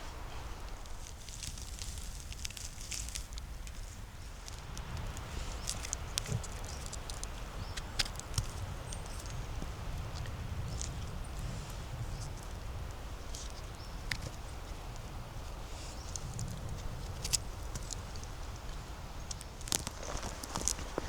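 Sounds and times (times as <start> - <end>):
footsteps crunching dry leaves: 0.0 - 4.7, 19.6 - 21.0
twigs snapping: 0.1 - 11.0, 16.0 - 21.0.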